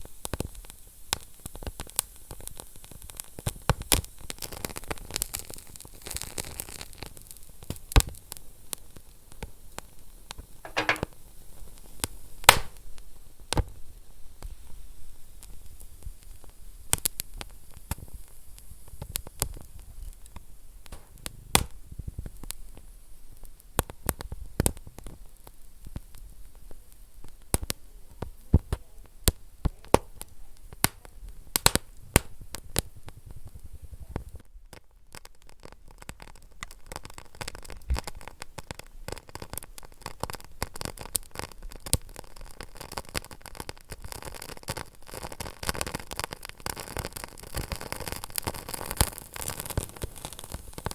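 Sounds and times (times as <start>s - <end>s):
wood fire crackling and popping: 0.2s - 11.2s, 11.8s - 13.8s, 15.3s - 50.9s
steady hiss: 11.9s - 34.4s.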